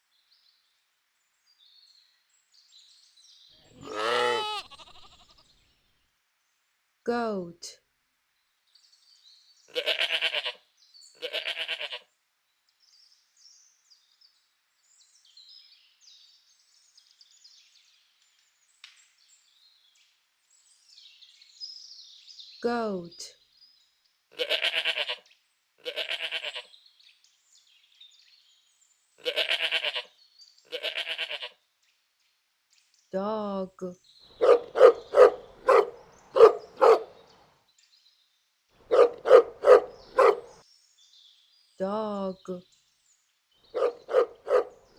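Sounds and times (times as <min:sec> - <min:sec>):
faint birds chirping: 0:00.0 - 0:06.7, 0:32.2 - 0:44.9
goat bleating: 0:03.7 - 0:05.4, 0:09.7 - 0:10.6, 0:11.2 - 0:12.0, 0:24.4 - 0:25.2, 0:25.8 - 0:26.6, 0:29.2 - 0:30.1, 0:30.7 - 0:31.5
dog barking: 0:34.4 - 0:37.2, 0:38.9 - 0:40.6, 0:43.8 - 0:44.8.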